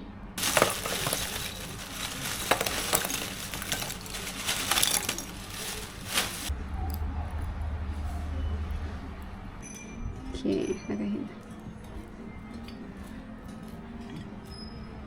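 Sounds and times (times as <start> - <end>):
hard pieces crunching and clattering: 0.4 - 6.5.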